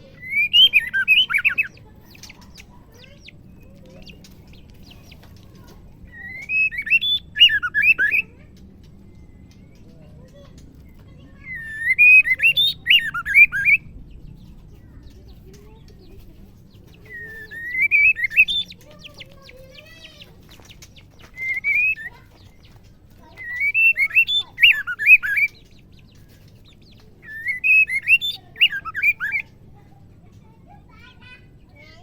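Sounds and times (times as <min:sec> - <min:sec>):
bird singing whistled notes: 0:00.0 - 0:02.7, 0:06.1 - 0:08.3, 0:11.4 - 0:14.0, 0:17.0 - 0:22.6, 0:23.2 - 0:29.5.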